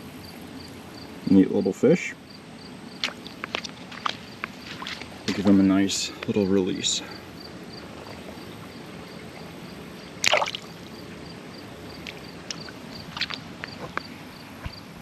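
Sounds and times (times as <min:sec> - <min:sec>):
fish splashing into water: 0:03.0 - 0:05.1, 0:10.2 - 0:10.9, 0:12.0 - 0:13.5
light clicks and drips: 0:03.0 - 0:05.4, 0:12.0 - 0:14.1
flowing water: 0:03.0 - 0:14.4.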